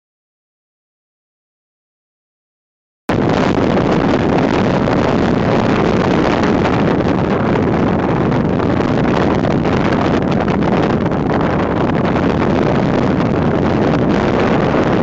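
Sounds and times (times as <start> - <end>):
strong wind on microphone: 3.1 - 15.0.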